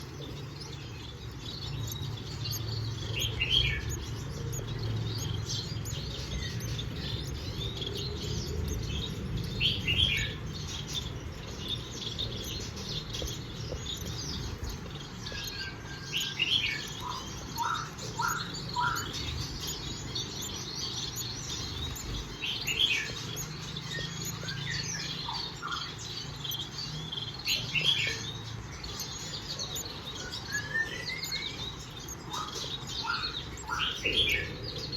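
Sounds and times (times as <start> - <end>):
finches chirping: 0.0 - 34.9.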